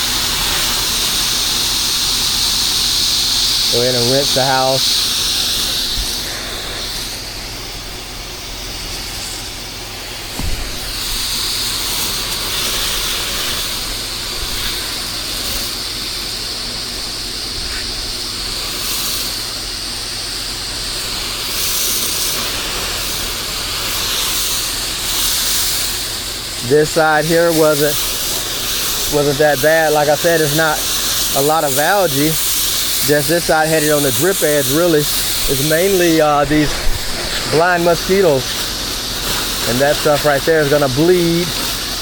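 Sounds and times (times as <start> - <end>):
pressure washer spray hissing: 0.0 - 42.0
brief knock: 10.4 - 10.8.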